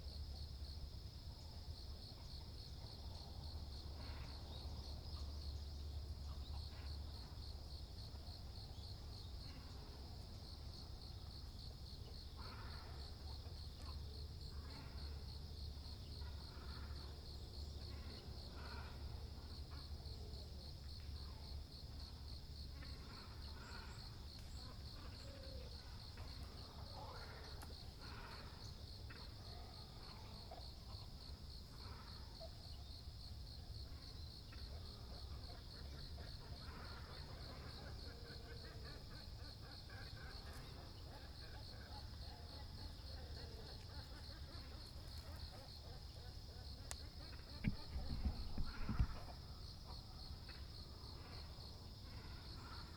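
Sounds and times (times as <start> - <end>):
insect trilling: 46.9 - 49.4.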